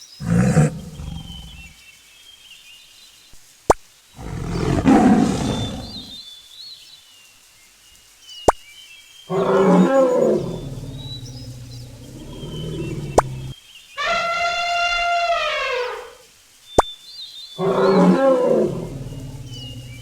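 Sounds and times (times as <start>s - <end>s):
faint high bird calls: 0.0s - 1.8s, 4.2s - 6.2s, 9.2s - 20.0s
big cat roaring: 0.2s - 1.8s, 4.2s - 6.2s, 9.3s - 16.2s, 17.6s - 20.0s.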